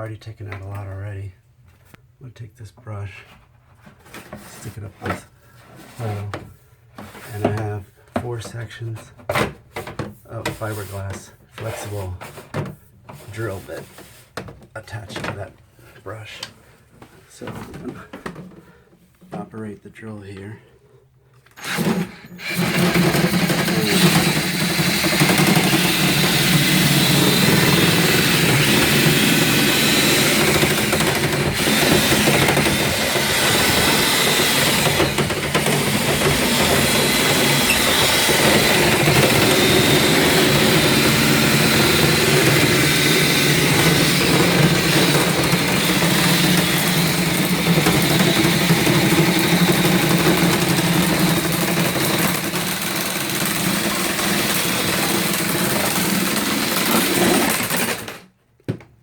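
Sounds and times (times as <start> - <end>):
electric drill running: 21.5 - 58.2.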